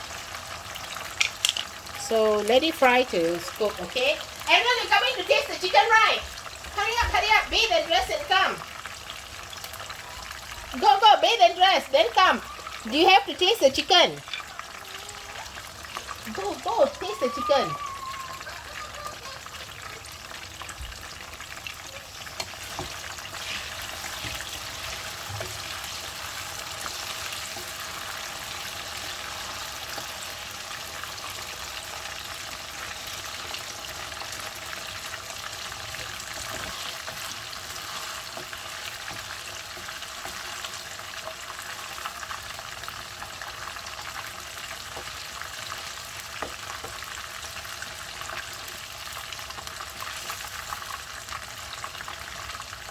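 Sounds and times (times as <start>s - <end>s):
oil crackles and pops: 0.0s - 2.1s, 8.6s - 10.8s, 14.2s - 16.8s, 18.0s - 52.9s
chicken deep-frying in oil: 0.0s - 52.9s.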